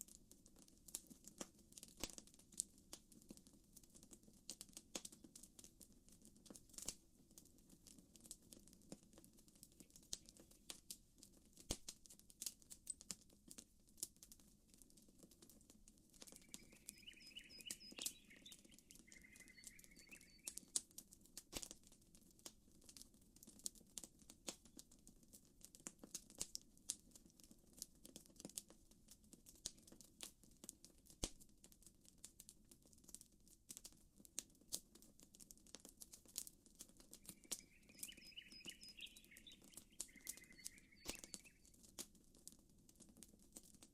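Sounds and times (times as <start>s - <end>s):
campfire crackling: 0.1s - 43.9s
bird warbling: 16.4s - 20.6s, 37.4s - 41.6s.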